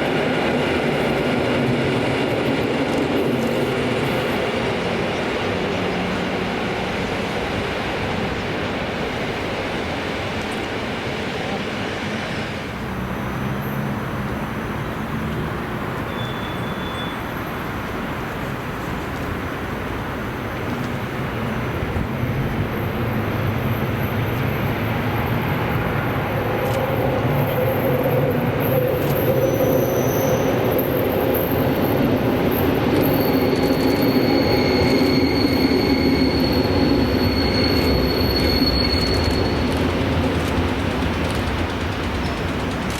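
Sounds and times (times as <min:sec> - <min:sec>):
train rumbling on rails: 0:00.0 - 0:42.9
thin high squeal: 0:33.0 - 0:39.9.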